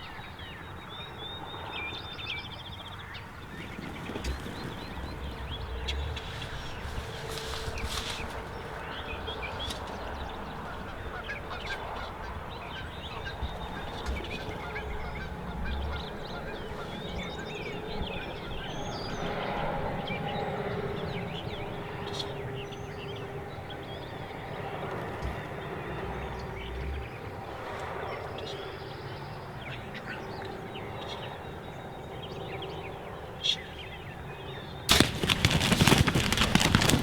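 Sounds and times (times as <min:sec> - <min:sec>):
small birds chirping: 0:00.0 - 0:19.5, 0:33.5 - 0:37.0
honking bird calls: 0:03.6 - 0:19.3.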